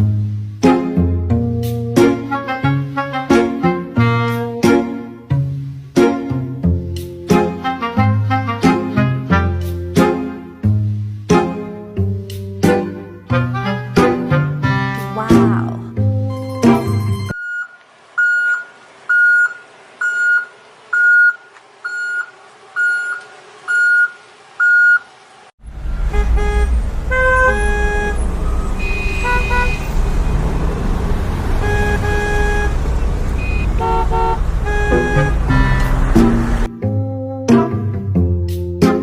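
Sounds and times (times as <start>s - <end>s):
electronic reversing beeps: 17.4s - 25.1s, 33.4s - 33.8s
low vehicle rumble: 17.9s - 36.7s
short horn toots: 25.9s - 30.0s, 33.4s - 36.6s.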